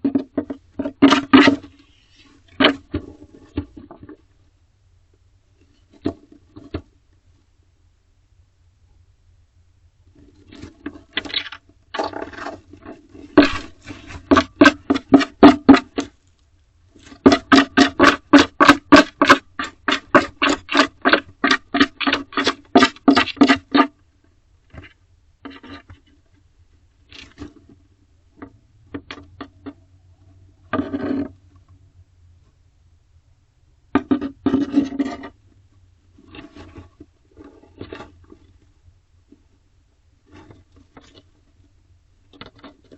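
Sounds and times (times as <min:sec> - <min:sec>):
owl scratching on wooden wall: 0:00.0 - 0:04.2, 0:10.4 - 0:16.3, 0:17.0 - 0:24.0, 0:30.6 - 0:31.6, 0:34.0 - 0:35.4.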